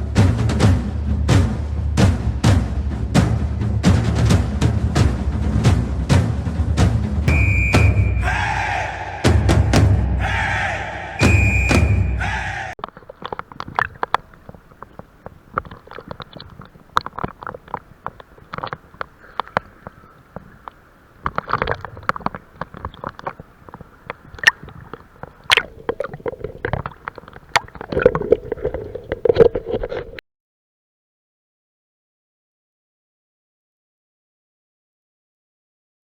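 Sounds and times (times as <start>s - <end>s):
underwater clicks and crackles: 12.8s - 30.2s
underwater wash of moving water: 12.8s - 30.2s.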